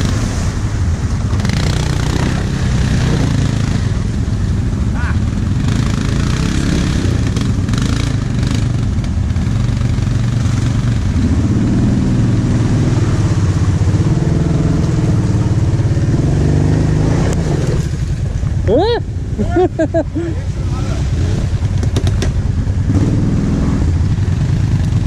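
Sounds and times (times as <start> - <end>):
atv engine running under load: 0.0 - 25.0.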